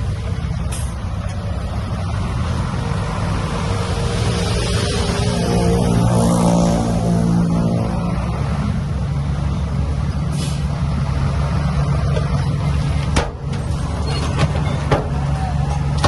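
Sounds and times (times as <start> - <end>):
heavy diesel engine under load: 0.0 - 16.0
short hiss: 10.3 - 10.7.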